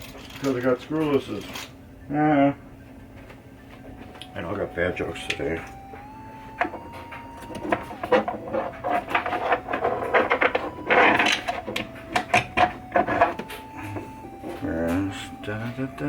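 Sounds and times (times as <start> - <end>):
small metal parts clicking and rattling: 0.0 - 1.7, 8.1 - 13.4.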